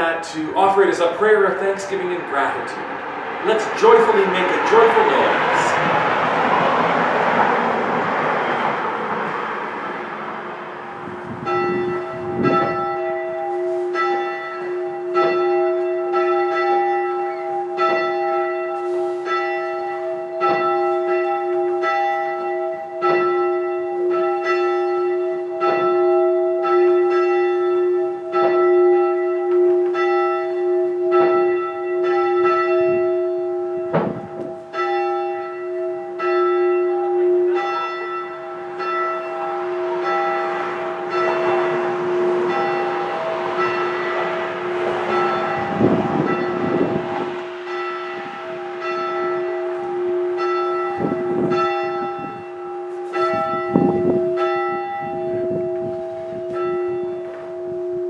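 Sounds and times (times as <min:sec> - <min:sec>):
church bell ringing: 0:00.0 - 0:58.0
rushing noise: 0:39.4 - 0:50.3.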